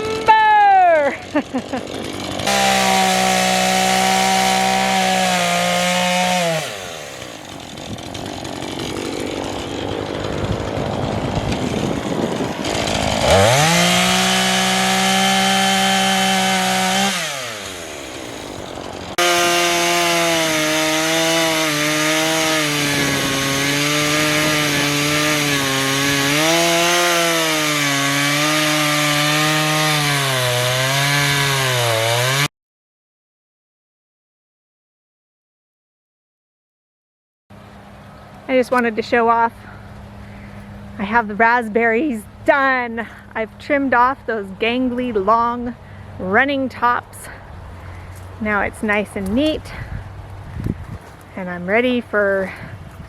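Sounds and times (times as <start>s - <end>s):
chainsaw cutting wood: 1.0s - 32.5s
chainsaw revving and idling: 1.0s - 32.5s.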